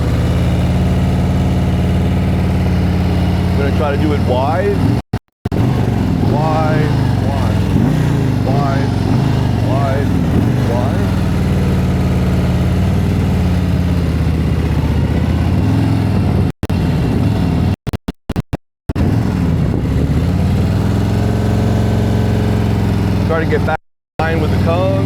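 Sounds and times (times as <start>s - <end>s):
motorcycle engine at low revs: 0.0s - 25.0s.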